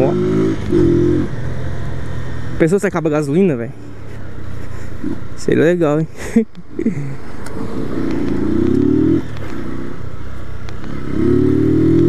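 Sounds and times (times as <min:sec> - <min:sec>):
motorcycle engine revving: 0:00.0 - 0:03.0, 0:07.4 - 0:12.0.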